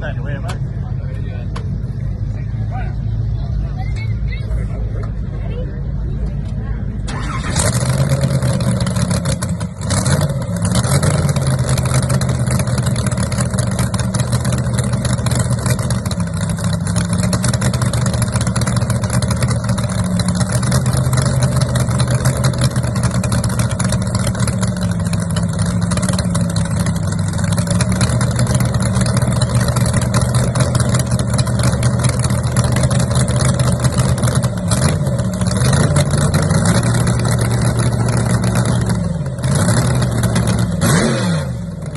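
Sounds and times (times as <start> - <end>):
car engine idling and revving: 0.0 - 41.9.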